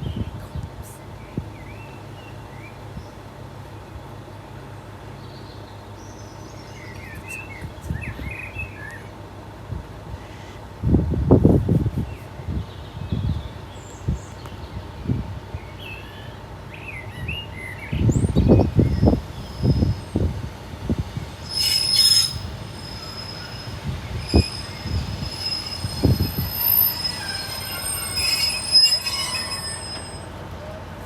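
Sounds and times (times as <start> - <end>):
passenger train approaching: 13.4 - 31.0
wheels squealing on rails: 15.9 - 31.0
low rumbling gusts: 18.0 - 28.8.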